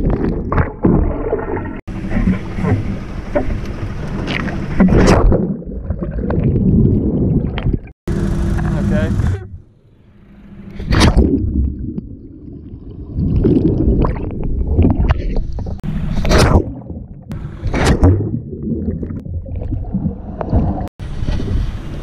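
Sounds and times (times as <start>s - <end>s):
gurgling water and bubbles: 0.0s - 8.8s, 10.7s - 22.0s
pole splashing into water: 16.1s - 16.9s, 17.6s - 18.4s.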